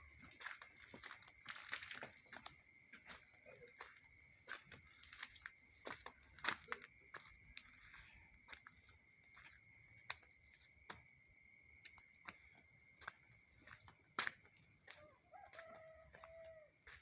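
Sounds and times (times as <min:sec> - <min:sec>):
footsteps crunching: 0:00.0 - 0:11.1, 0:11.8 - 0:17.0
night insects trilling: 0:00.0 - 0:17.0.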